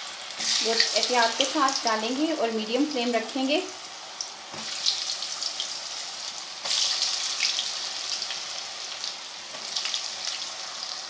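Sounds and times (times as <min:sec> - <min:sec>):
chips deep-frying with crackling pops: 0:00.0 - 0:02.4, 0:03.2 - 0:11.0.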